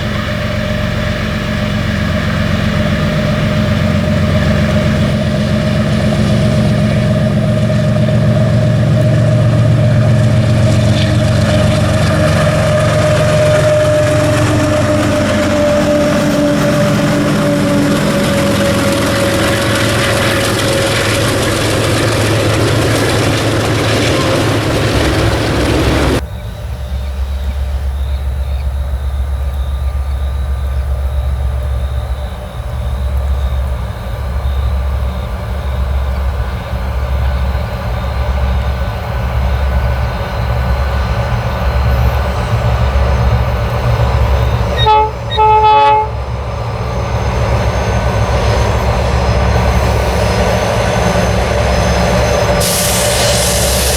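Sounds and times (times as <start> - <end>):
train horn: 0.0 - 26.2, 44.2 - 46.5
locomotive engine rumble: 0.0 - 53.9
train wheels rushing on rails: 0.0 - 53.9.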